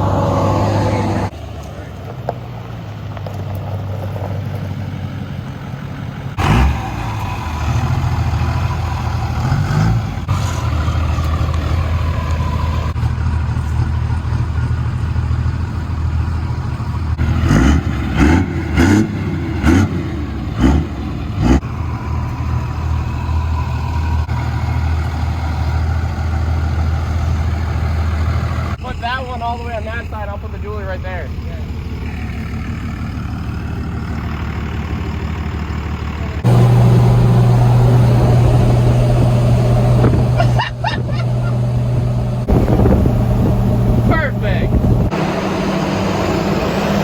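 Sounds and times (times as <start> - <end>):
truck engine rumbling: 0.0 - 47.0
engine knocks: 24.2 - 45.4.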